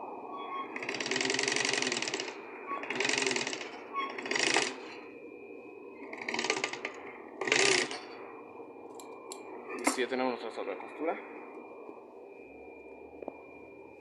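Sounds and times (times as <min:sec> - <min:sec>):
sewing machine stitching: 0:00.8 - 0:02.2, 0:02.8 - 0:03.6, 0:07.4 - 0:08.0.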